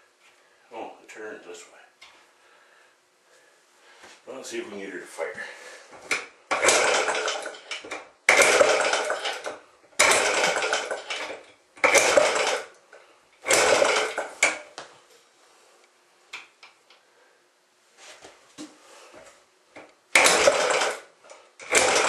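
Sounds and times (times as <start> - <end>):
recoil starter rope whirring: 6.1 - 12.8, 13.4 - 14.7, 20.1 - 22.0.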